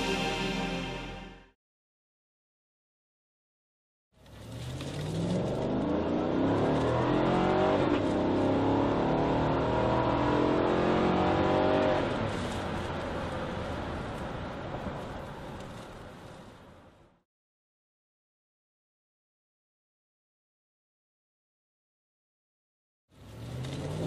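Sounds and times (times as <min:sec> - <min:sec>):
car engine accelerating: 0:04.2 - 0:14.6, 0:23.2 - 0:24.0.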